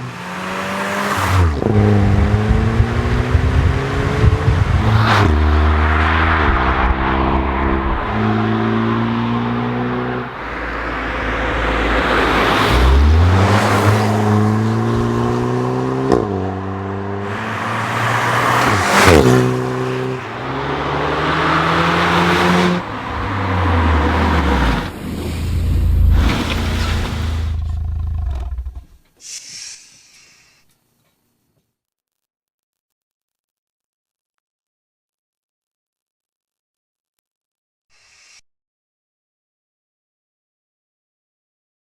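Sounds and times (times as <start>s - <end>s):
car engine accelerating hard: 0.0s - 28.9s
exhaust pop: 2.1s - 5.5s.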